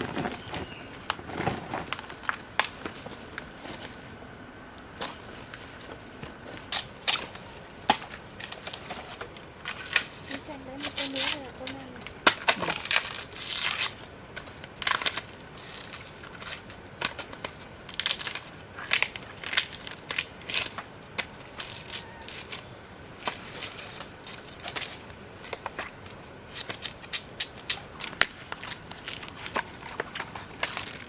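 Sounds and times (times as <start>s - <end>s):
dry plants crunching and snapping: 6.2s - 31.0s.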